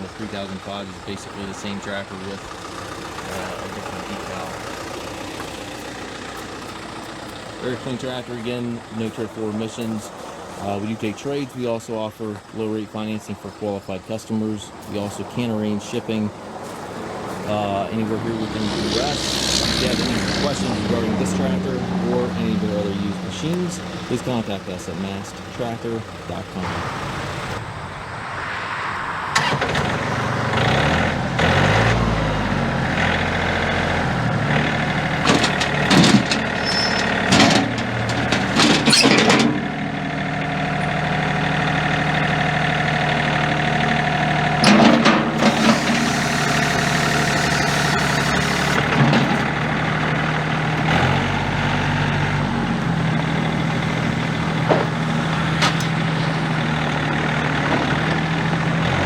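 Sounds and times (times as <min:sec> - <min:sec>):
tractor diesel engine running: 0:00.0 - 0:59.0
sharp metal clanks: 0:35.2 - 0:39.8.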